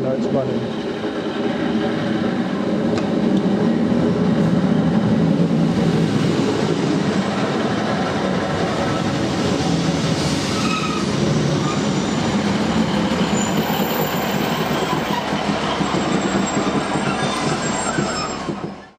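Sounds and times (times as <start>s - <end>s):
train wheels rumbling on rails: 0.0s - 18.9s.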